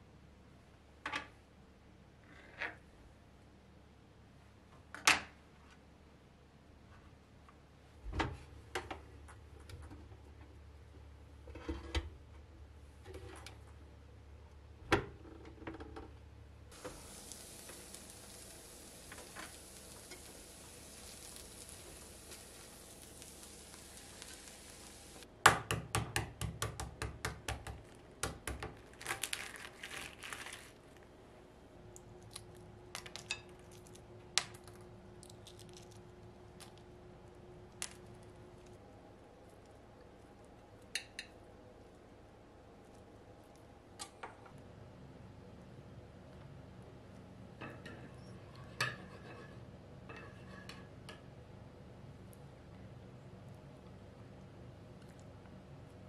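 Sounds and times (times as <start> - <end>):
steady hiss: 16.7 - 25.3.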